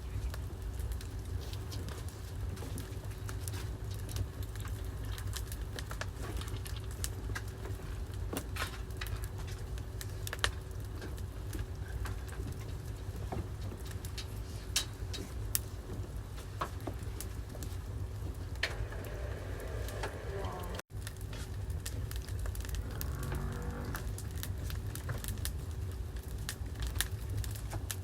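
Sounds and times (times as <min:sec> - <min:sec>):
low fire rumble: 0:00.0 - 0:28.0
wood fire crackling and popping: 0:00.0 - 0:28.0.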